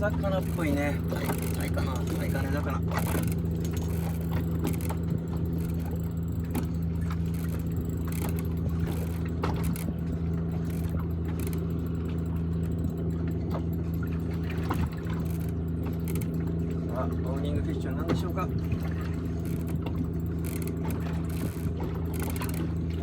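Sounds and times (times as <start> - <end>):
light clicks and knocks: 0.0 - 23.0
outboard engine idling: 0.0 - 23.0.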